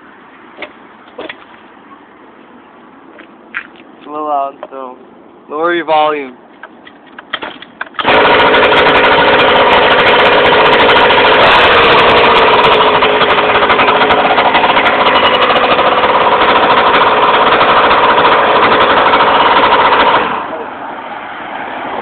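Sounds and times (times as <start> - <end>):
scooter engine running: 8.0 - 20.6.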